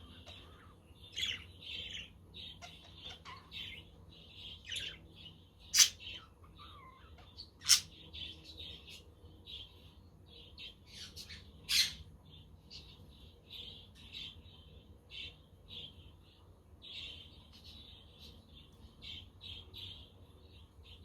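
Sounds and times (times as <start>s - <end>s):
budgerigars chattering: 5.7s - 8.1s.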